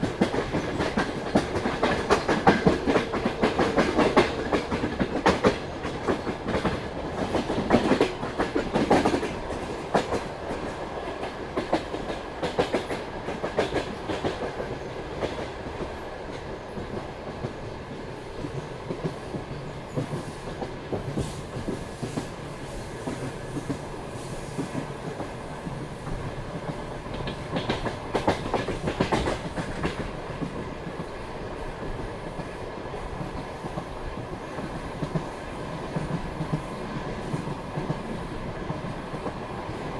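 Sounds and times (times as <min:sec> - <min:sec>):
train wheels clacking over rail joints: 0:00.0 - 0:17.6, 0:18.4 - 0:31.1
moving train rumble: 0:00.0 - 0:39.9.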